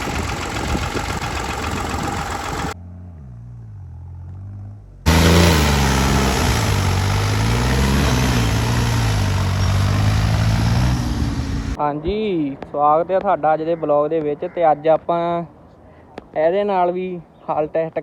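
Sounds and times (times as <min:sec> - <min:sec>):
tractor diesel engine revving: 0:00.0 - 0:02.8, 0:05.1 - 0:11.8.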